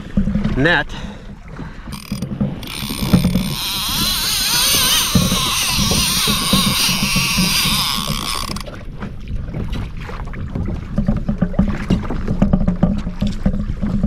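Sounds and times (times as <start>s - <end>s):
water around kayak: 0.0s - 14.0s
gear clicking and knocking: 1.9s - 8.7s.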